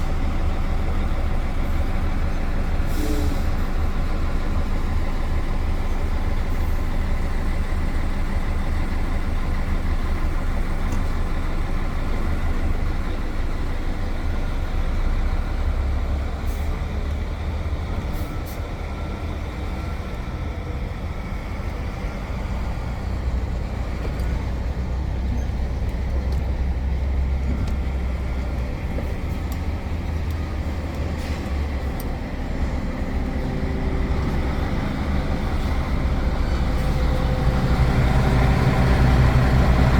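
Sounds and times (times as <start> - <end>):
diesel truck engine running: 0.0 - 39.9
tyre and road noise hiss: 2.7 - 3.8.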